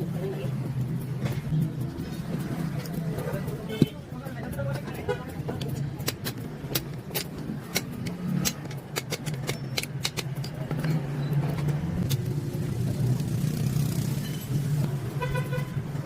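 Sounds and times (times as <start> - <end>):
sharp clicks and taps: 0.7 - 12.4.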